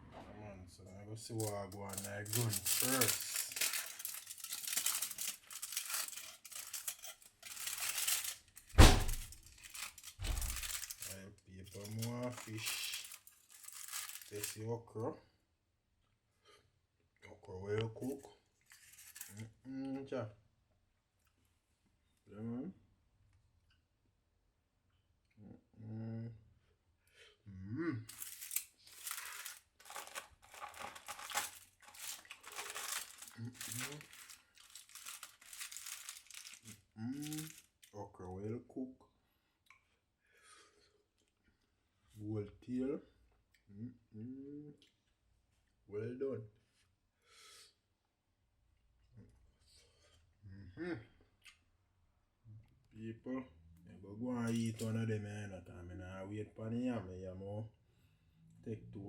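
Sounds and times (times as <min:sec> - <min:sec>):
wrapping crinkling and rustling: 0:01.4 - 0:14.6, 0:18.6 - 0:19.4, 0:28.1 - 0:38.0
loud thump: 0:08.8 - 0:09.3.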